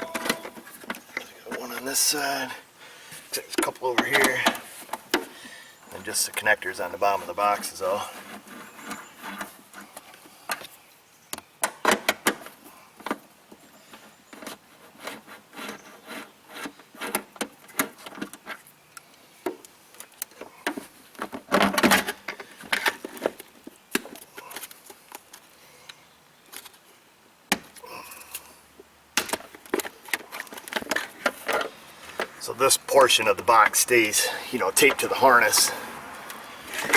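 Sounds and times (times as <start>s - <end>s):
hand tools clicking and rattling: 0.0s - 1.8s.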